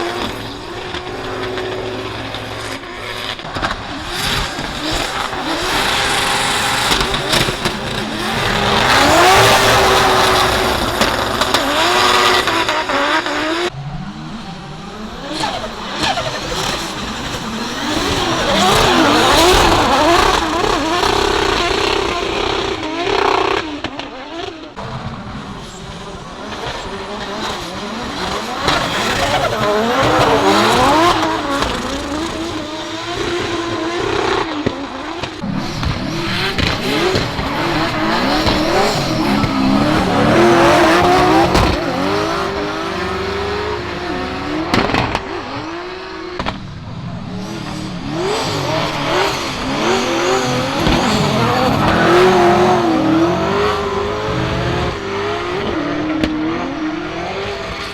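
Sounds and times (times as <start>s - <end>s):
car engines revving: 0.0s - 57.9s
tyre noise: 46.4s - 56.4s.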